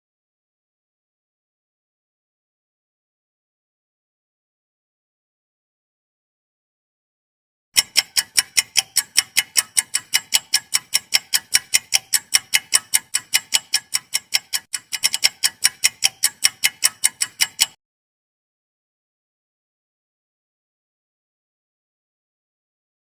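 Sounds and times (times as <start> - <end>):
clock ticking: 7.8 - 17.8.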